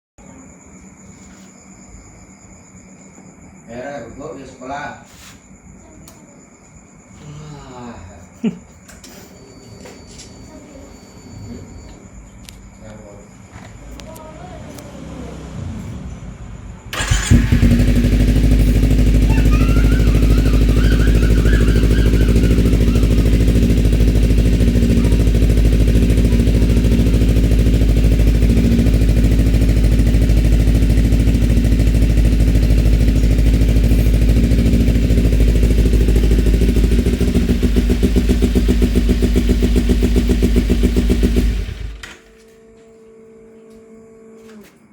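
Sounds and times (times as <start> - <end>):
motorcycle engine idling: 16.3 - 42.2.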